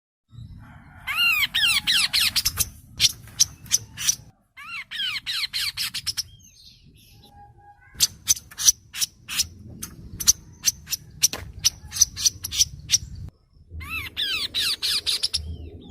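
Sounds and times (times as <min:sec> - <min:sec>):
bird sharp chirps: 0:01.6 - 0:15.9.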